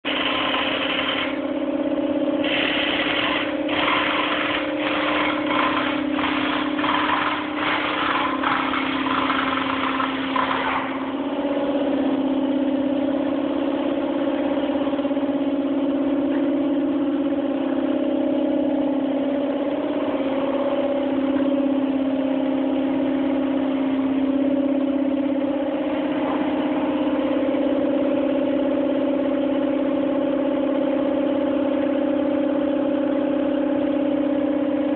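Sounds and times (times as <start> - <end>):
car engine idling: 0.1 - 34.8
short sharp bursts of noise: 2.4 - 10.9.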